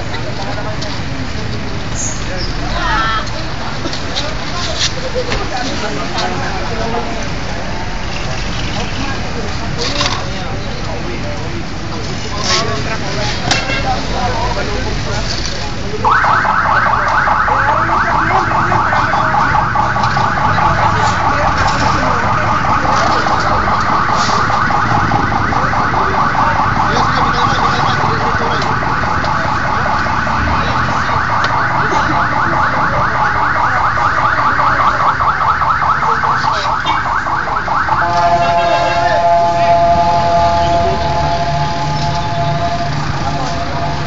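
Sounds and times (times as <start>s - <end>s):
electronic siren warbling: 16.0s - 44.0s.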